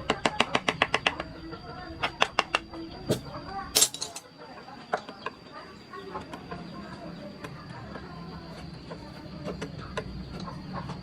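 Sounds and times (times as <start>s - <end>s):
mallet striking carving chisel: 0.0s - 1.2s.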